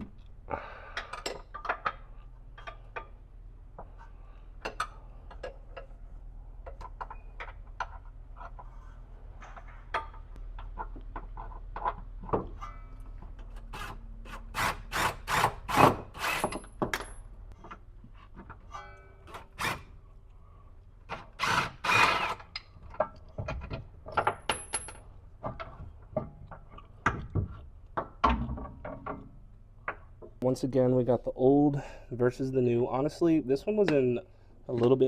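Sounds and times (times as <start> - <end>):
tools and metal parts clinking: 22.5 - 26.9.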